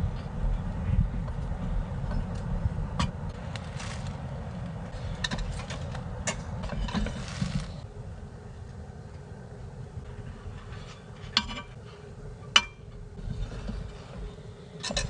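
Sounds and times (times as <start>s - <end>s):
low rumble: 0.0s - 15.0s
rustling of things handled: 3.3s - 7.9s.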